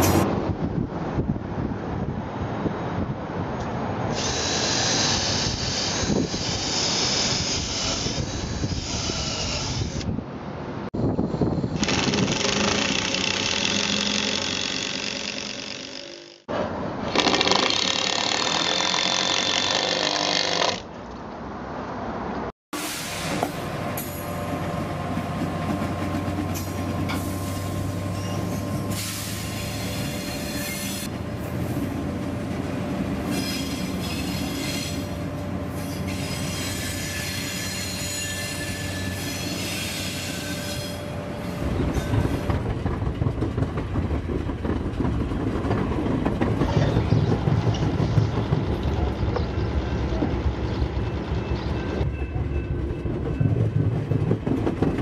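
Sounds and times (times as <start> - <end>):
train rolling on track: 0.0 - 20.8, 22.8 - 55.0
high wheel squeal: 27.1 - 31.1, 33.3 - 42.6
wheels rumbling and clattering: 41.6 - 55.0.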